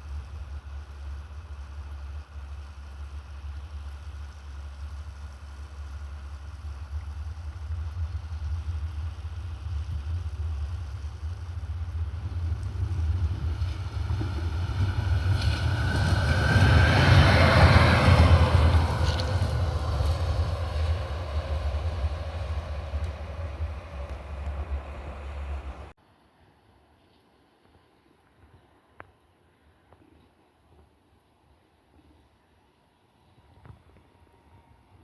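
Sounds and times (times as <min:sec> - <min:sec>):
train rumble: 0:00.0 - 0:26.0.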